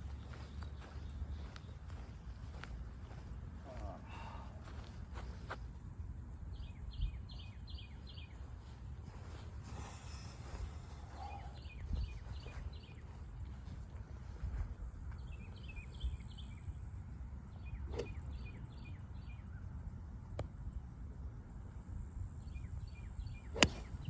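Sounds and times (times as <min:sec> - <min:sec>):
birds chirping: 0:00.0 - 0:24.0
low wind rumble: 0:00.0 - 0:24.0
golf club striking ball: 0:17.9 - 0:18.2, 0:23.5 - 0:23.9.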